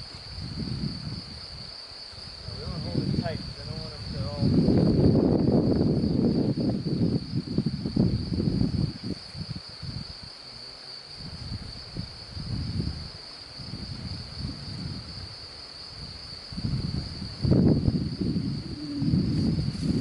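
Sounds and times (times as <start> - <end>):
high-pitched insect trill: 0.0 - 20.0
microphone handling rumble: 2.5 - 10.1, 16.6 - 20.0.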